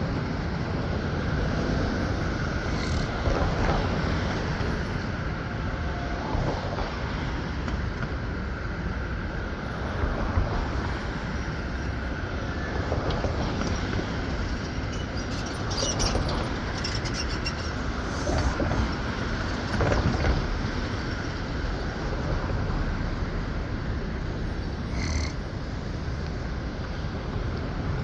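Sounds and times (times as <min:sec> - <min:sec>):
train running on rails: 0:00.0 - 0:28.0
wheels rattling and clattering: 0:00.1 - 0:05.4, 0:09.6 - 0:28.0
high wheel squeal: 0:01.8 - 0:06.3, 0:11.2 - 0:22.2, 0:24.6 - 0:26.0.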